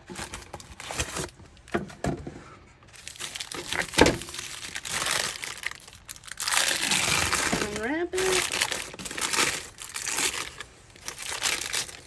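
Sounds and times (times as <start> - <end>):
wax paper crinkling: 2.9 - 12.0.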